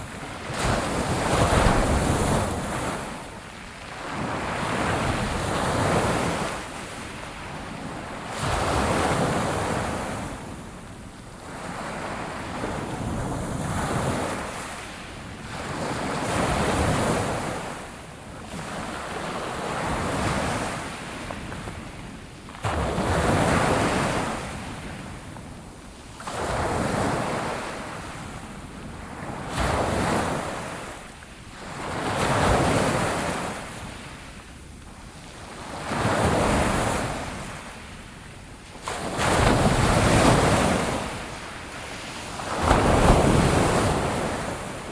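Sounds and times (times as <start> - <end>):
sea waves breaking on shore: 0.0 - 10.7, 35.2 - 44.9.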